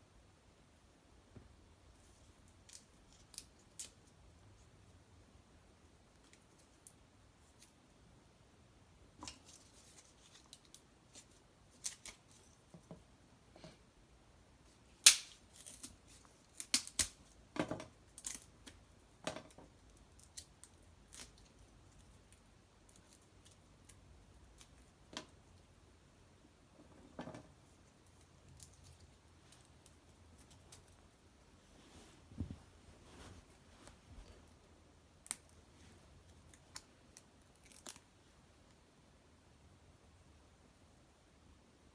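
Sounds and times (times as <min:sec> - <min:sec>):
sticks crackling and snapping: 0:15.0 - 0:17.4, 0:18.2 - 0:18.8, 0:35.2 - 0:35.6, 0:36.4 - 0:38.1.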